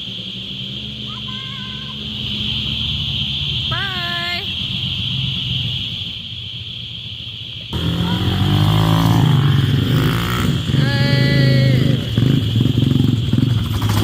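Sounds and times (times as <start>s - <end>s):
high-pitched drone: 7.7s - 13.4s
small engine running: 7.7s - 14.0s.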